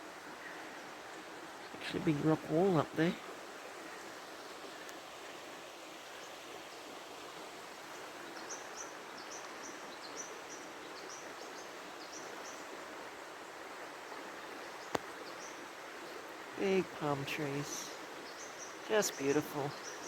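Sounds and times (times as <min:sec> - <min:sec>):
river water rushing: 0:00.0 - 0:20.0
bird chirping: 0:16.6 - 0:20.0.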